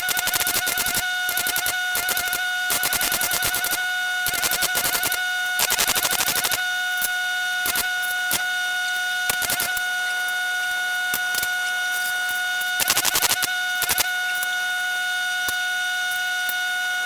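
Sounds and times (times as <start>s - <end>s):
welding arc buzzing: 0.0s - 10.0s, 11.0s - 14.6s.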